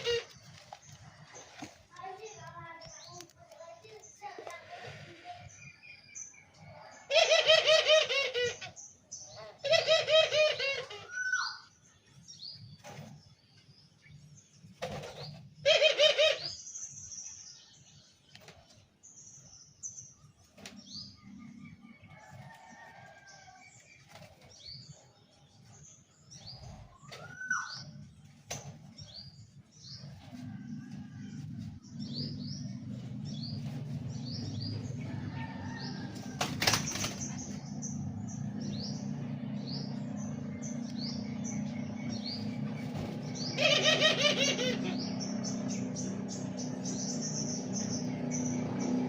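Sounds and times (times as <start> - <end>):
birds chirping: 0.0 - 49.0
wing flapping: 36.2 - 37.5.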